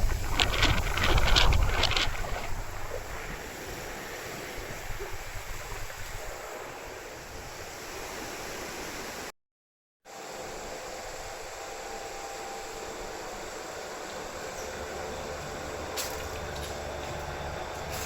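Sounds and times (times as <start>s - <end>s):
strong wind buffeting microphone: 0.0s - 8.4s.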